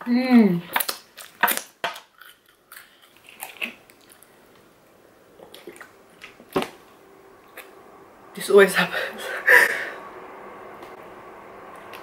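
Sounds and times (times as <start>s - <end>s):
person chewing food: 0.7s - 6.7s.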